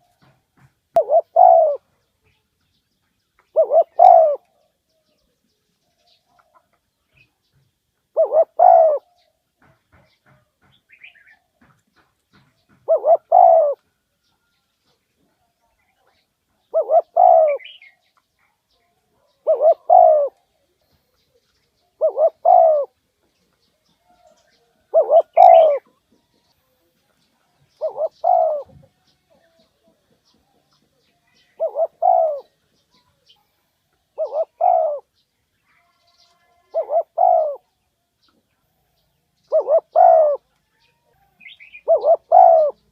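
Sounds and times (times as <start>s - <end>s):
dove cooing: 0.9s - 2.0s, 3.5s - 4.7s, 8.1s - 9.3s, 12.7s - 13.9s, 16.6s - 18.0s, 19.2s - 20.4s, 21.9s - 23.0s, 24.1s - 26.0s, 27.7s - 28.9s, 31.4s - 32.6s, 34.1s - 35.1s, 36.6s - 37.8s, 39.4s - 40.5s, 41.1s - 42.9s.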